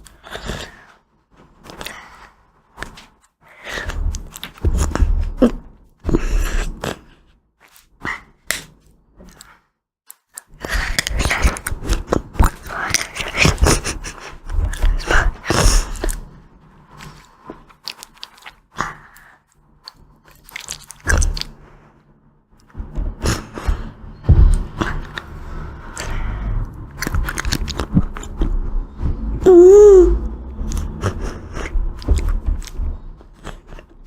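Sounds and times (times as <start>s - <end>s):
crunchy bites and chewing: 16.9s - 21.8s, 26.0s - 28.6s.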